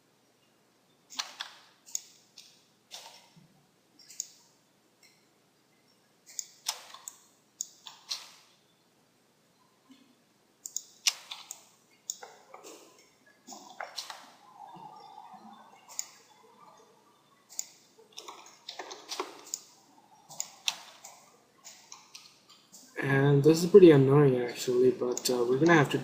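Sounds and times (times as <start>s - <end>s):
computer mouse clicking: 1.1s - 3.4s, 4.0s - 4.5s, 6.3s - 8.4s, 10.6s - 12.8s, 15.9s - 16.8s, 17.4s - 23.0s.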